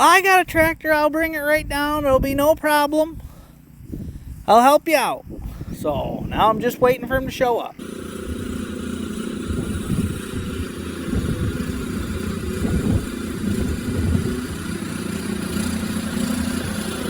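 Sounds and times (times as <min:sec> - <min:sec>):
tractor engine running: 0:07.2 - 0:17.0.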